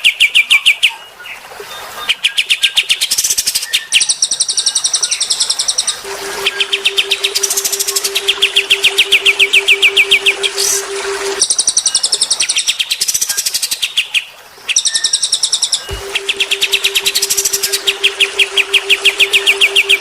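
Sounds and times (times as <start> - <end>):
steady low hum: 6.0 - 11.4, 15.9 - 20.0
songbird singing high notes: 6.0 - 12.0.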